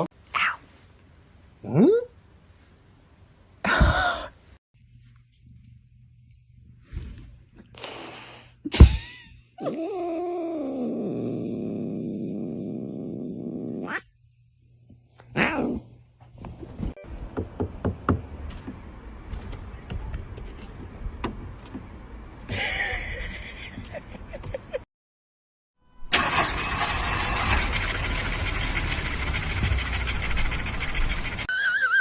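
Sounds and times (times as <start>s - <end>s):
cat yowling: 9.6s - 11.3s, 13.8s - 14.1s, 15.3s - 15.8s.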